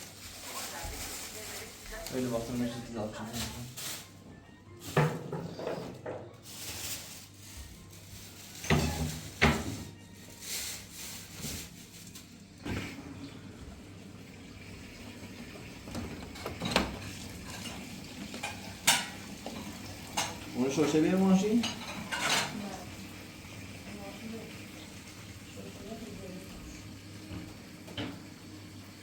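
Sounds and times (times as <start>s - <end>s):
kitchenware knocking and clinking: 4.9s - 6.3s, 8.6s - 10.0s, 15.9s - 22.6s.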